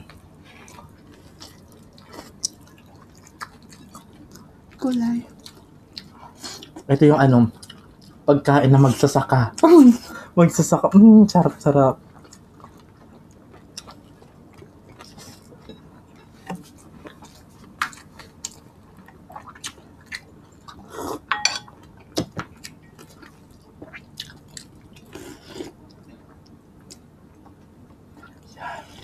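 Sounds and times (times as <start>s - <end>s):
chewing and lip smacking: 0.0s - 6.9s, 12.0s - 21.3s, 21.9s - 28.6s.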